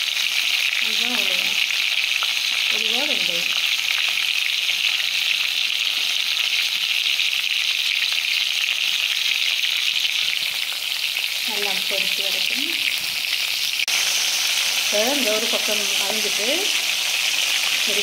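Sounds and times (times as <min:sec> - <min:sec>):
crabs sizzling in hot oil: 0:00.0 - 0:18.0.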